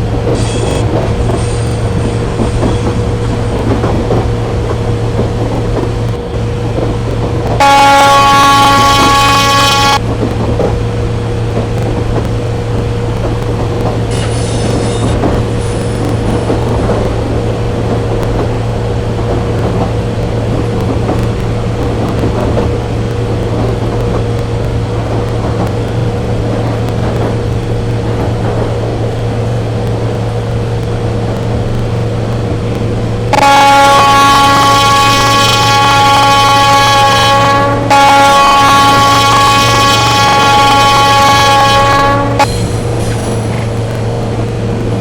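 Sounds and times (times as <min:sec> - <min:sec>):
train rumble and hum: 0:00.0 - 0:45.0
loud train horn: 0:07.6 - 0:10.0, 0:33.3 - 0:42.7
faint horn toots: 0:33.3 - 0:42.6.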